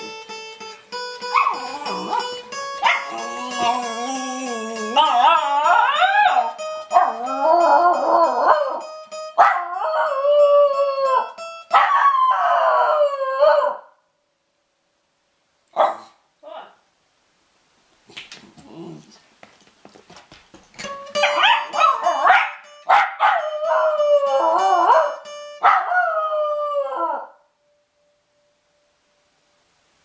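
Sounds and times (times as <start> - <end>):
acoustic guitar plucked: 0.0 - 9.9, 20.7 - 25.7
dog howling: 1.4 - 8.8, 23.2 - 27.4.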